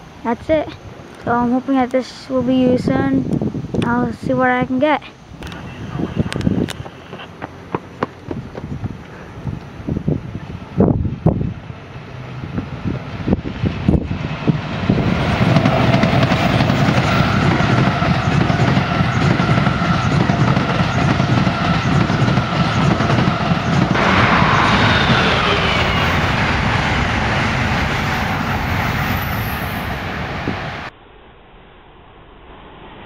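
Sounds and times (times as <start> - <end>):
train wheels rumbling and clattering: 10.8 - 30.9.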